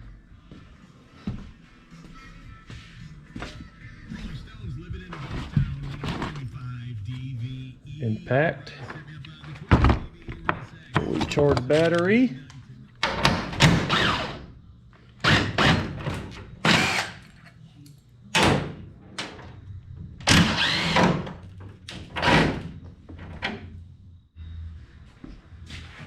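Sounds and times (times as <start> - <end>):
impact wrench bursts: 13.0 - 14.4, 15.2 - 16.0, 16.6 - 17.2, 20.3 - 21.3.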